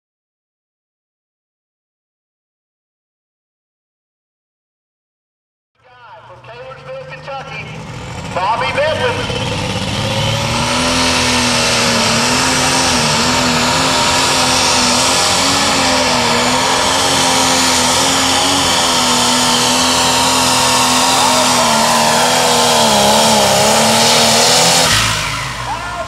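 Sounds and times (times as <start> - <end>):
tractor diesel engine under load: 5.8 - 26.0.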